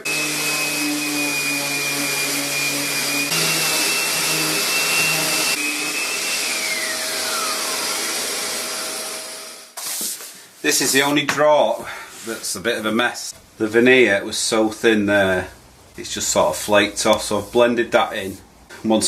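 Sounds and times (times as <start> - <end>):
power tool high whine: 0.0 - 9.8
motor winding down: 0.1 - 9.7.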